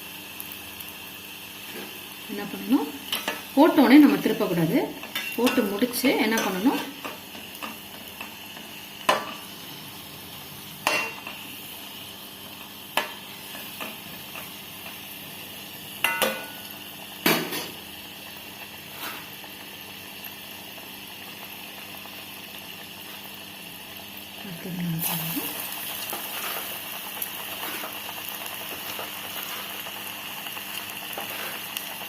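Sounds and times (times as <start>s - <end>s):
food deep-frying in oil: 0.0s - 32.0s
metal utensil clinking on pan: 16.0s - 16.6s.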